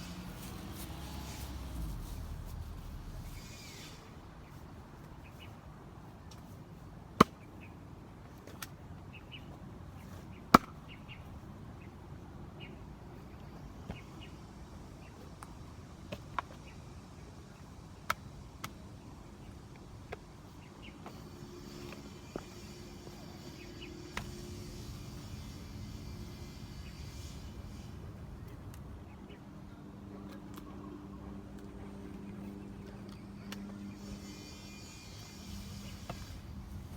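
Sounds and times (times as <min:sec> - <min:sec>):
axe chopping wood: 0:10.5 - 0:10.8.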